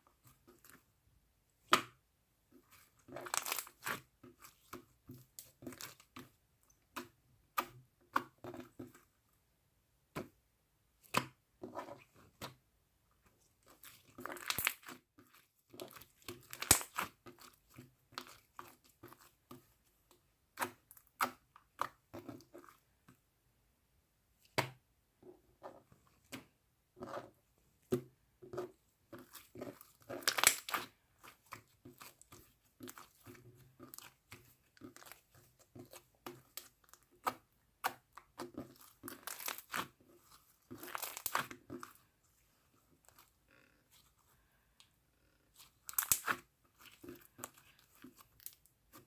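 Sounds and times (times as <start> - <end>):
slime squished by hand: 29.2 - 42.0, 45.5 - 49.0.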